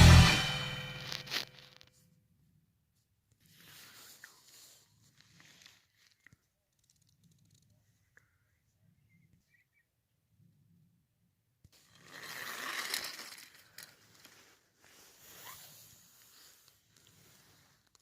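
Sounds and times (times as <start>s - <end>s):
rustling and scraping: 0.0s - 2.1s, 3.4s - 8.0s, 11.8s - 18.0s
small clicks: 6.0s - 8.3s.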